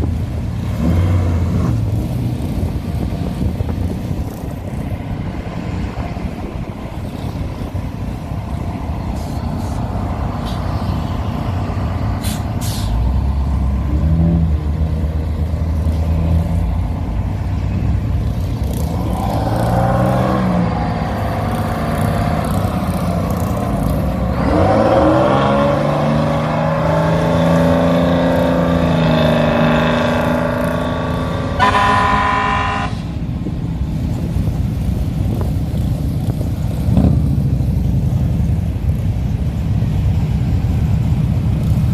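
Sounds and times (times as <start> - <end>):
car engines pulling away: 0.0 - 41.9
short horn blast: 31.4 - 33.2.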